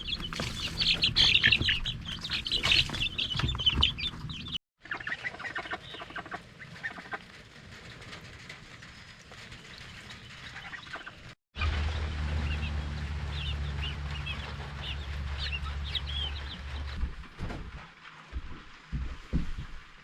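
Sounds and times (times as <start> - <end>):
chickens clucking: 0.0 - 7.3.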